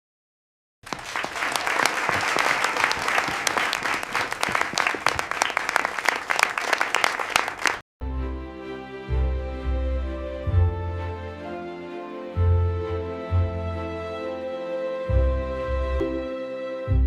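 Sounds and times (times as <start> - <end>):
crowd applauding: 0.8 - 7.8.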